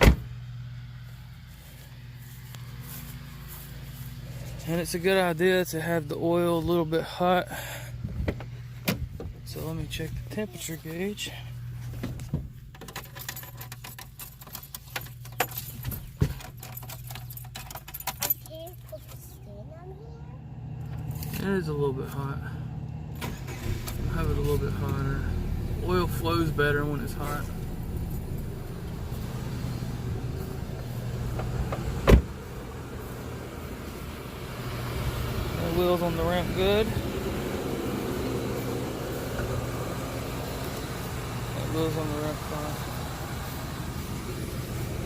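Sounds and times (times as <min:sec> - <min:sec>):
loud thump: 0:00.0 - 0:00.3, 0:31.7 - 0:32.3
car engine idling: 0:00.0 - 0:45.0
steady low hum: 0:00.0 - 0:45.0
car keys jangling: 0:12.6 - 0:19.3.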